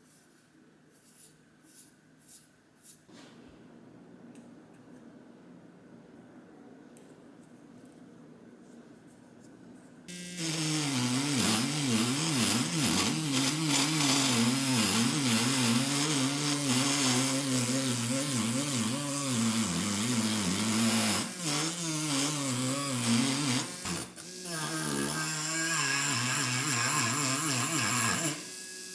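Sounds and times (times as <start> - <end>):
power tool running: 10.1 - 28.9.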